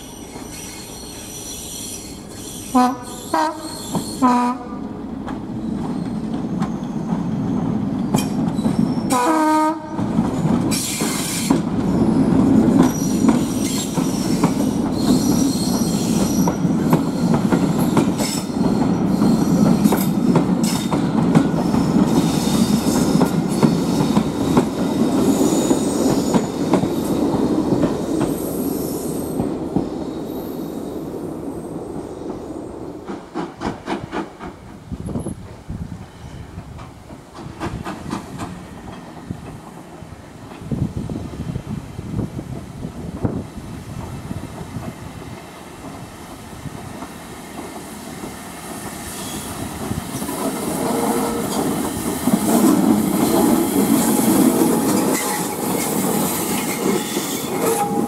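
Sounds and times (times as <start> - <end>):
high wheel squeal: 0.0 - 4.3, 12.9 - 19.7, 49.0 - 49.6
diesel locomotive passing: 0.0 - 58.0.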